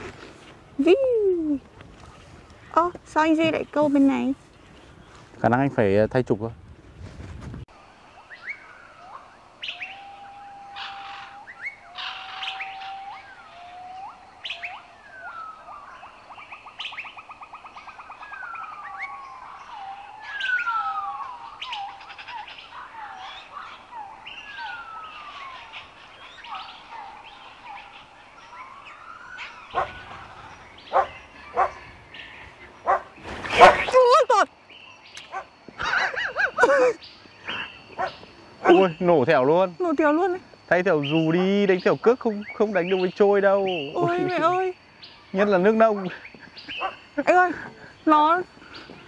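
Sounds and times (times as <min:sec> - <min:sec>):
birds whistling: 0:08.0 - 0:39.4, 0:40.9 - 0:49.0
buzzy bird trill: 0:08.2 - 0:35.4.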